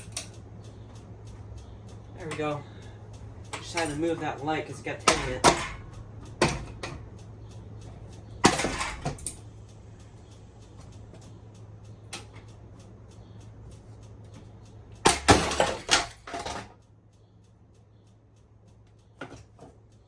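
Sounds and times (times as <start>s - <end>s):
ceiling fan motor humming: 0.0s - 20.0s
fan ticking: 0.0s - 20.0s
fan clattering knocks: 3.5s - 7.1s, 8.4s - 9.3s, 15.0s - 16.8s.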